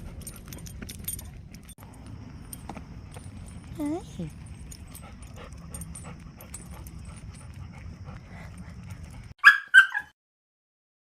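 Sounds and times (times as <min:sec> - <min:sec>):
dog yipping: 0:09.4 - 0:10.2.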